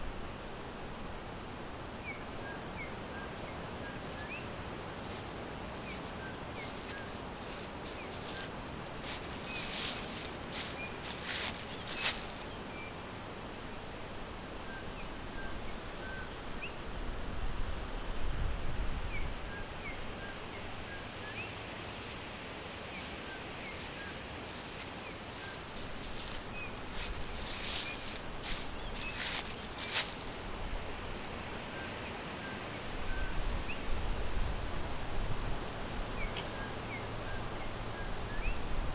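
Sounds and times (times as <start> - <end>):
low wind rumble: 0.0 - 14.6
background hiss: 0.0 - 33.0
small birds chirping: 2.0 - 13.0, 19.9 - 30.5
scratchy rustling: 5.0 - 12.7, 23.0 - 30.5.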